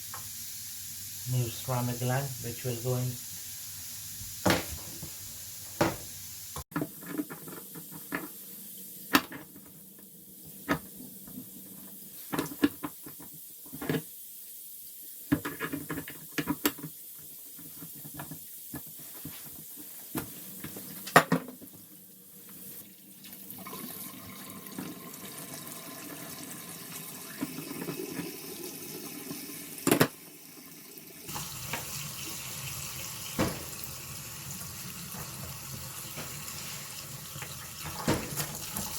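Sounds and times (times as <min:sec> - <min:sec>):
water running from tap: 0:22.4 - 0:38.9.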